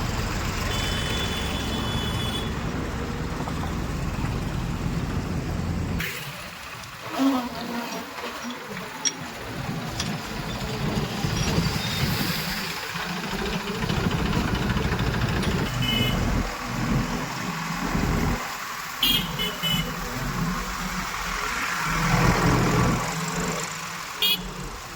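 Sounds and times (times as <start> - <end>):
diesel machinery engine running: 0.0 - 6.1, 9.3 - 19.0.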